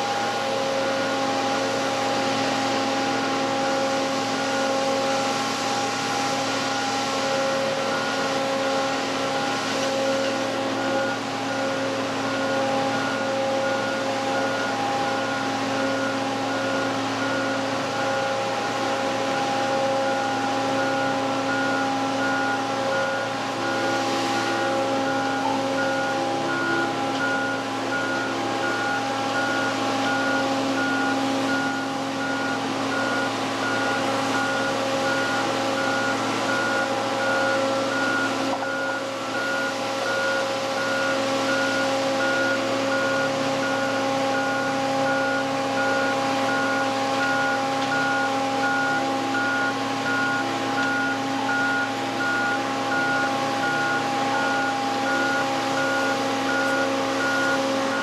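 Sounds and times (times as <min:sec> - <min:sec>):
machine running with held tones: 0:03.0 - 0:58.0
electronic beep: 0:24.5 - 0:58.0.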